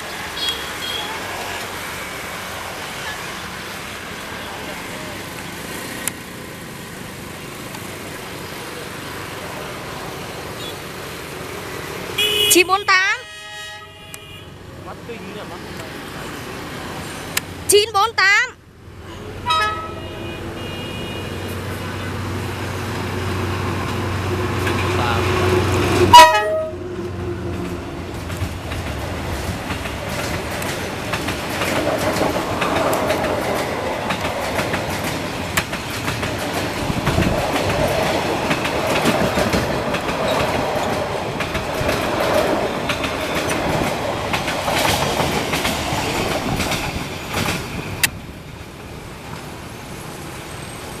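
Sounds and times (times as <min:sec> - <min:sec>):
train coaches rumbling past: 0:00.0 - 0:51.0
wheels clacking over rail joints: 0:21.6 - 0:48.4.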